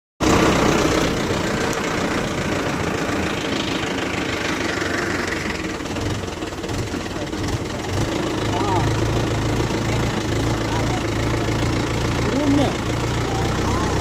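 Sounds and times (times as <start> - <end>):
tractor diesel engine running: 0.2 - 14.0.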